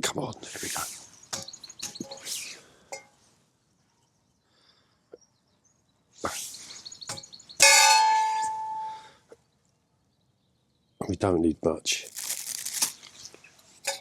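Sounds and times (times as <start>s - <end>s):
ringing metallic clang: 7.6s - 9.0s.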